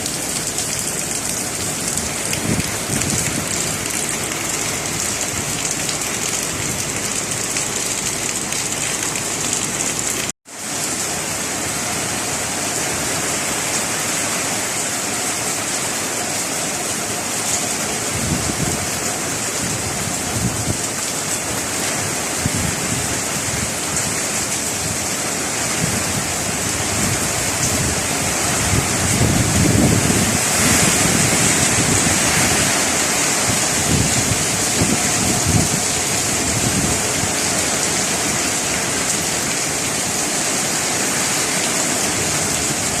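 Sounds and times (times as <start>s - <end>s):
heavy rain pouring: 0.0s - 43.0s
strong wind gusting: 1.2s - 7.5s, 18.0s - 20.9s, 22.0s - 40.3s.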